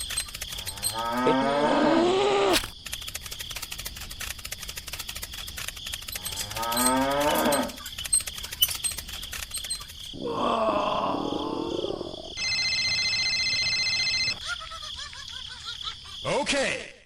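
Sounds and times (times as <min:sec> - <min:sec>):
fast steady clicking: 0:00.0 - 0:01.2, 0:02.6 - 0:10.1
cow mooing: 0:00.6 - 0:02.5, 0:06.3 - 0:07.8.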